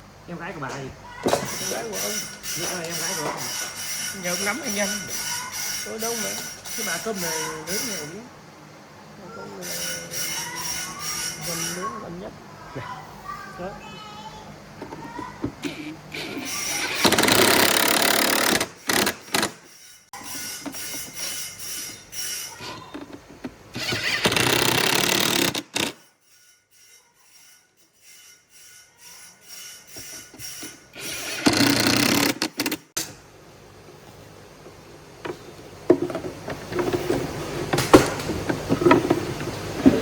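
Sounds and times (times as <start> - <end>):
tool handling noise: 0.7 - 8.1, 14.8 - 26.8, 35.2 - 40.0.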